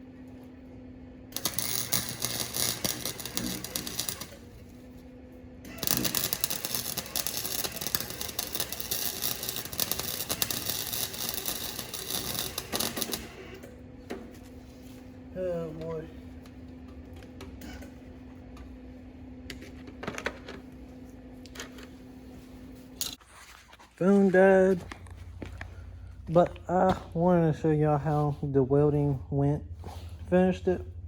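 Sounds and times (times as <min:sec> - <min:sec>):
arc welder crackling: 0:01.2 - 0:18.0.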